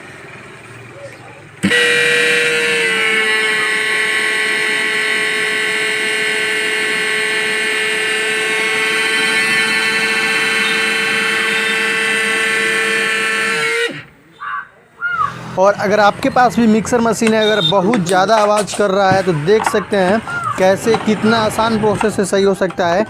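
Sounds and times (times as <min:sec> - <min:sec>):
mixer grinder motor whining: 0:01.6 - 0:14.2, 0:15.4 - 0:23.0.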